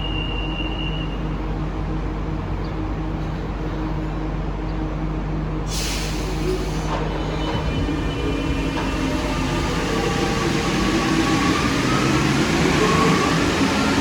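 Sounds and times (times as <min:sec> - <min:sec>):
train traction hum: 0:00.0 - 0:14.0
pneumatic air hiss: 0:05.7 - 0:07.2.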